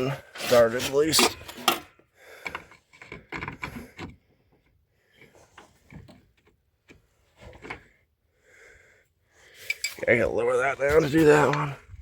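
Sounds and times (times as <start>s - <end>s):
metal parts and tools clicking: 9.6s - 10.0s.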